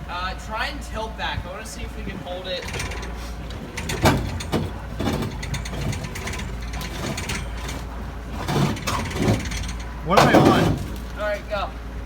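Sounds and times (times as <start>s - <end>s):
metal clanking and rattling: 2.3s - 11.6s
sharp knocks: 2.7s - 11.2s.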